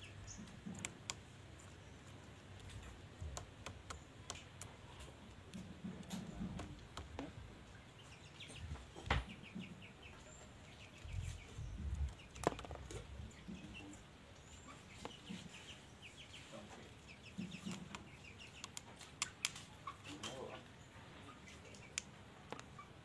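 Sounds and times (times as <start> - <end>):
birds chattering: 0.0 - 23.0
sharp clicks: 0.4 - 7.4.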